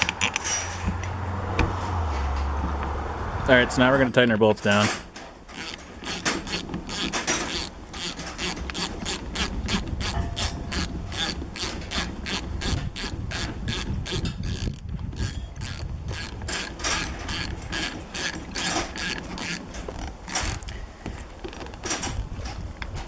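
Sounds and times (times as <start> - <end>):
ratchet wrench clicking: 5.5 - 20.7.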